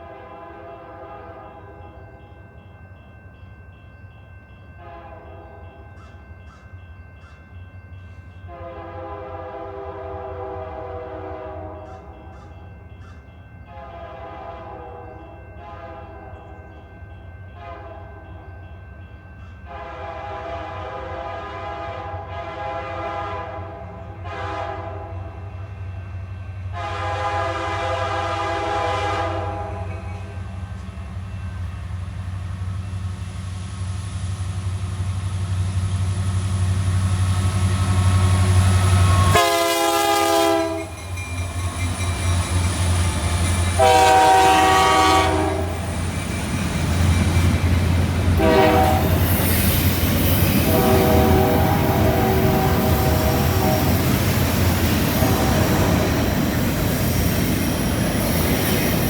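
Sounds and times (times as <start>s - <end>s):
locomotive air horn blasts: 0.0s - 1.8s, 4.8s - 5.8s, 8.5s - 11.9s, 13.7s - 16.5s, 17.6s - 18.2s, 19.7s - 25.5s, 26.7s - 30.4s, 38.6s - 40.9s, 43.7s - 45.8s, 48.4s - 49.4s, 50.6s - 54.1s, 55.1s - 56.1s
diesel locomotive rumble: 25.7s - 59.0s.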